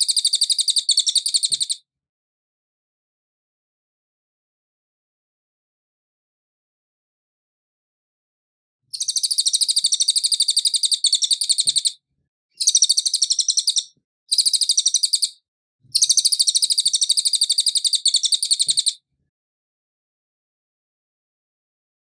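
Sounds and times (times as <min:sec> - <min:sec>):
bird high chirping runs: 0:00.0 - 0:01.8, 0:08.9 - 0:12.0, 0:12.6 - 0:19.0.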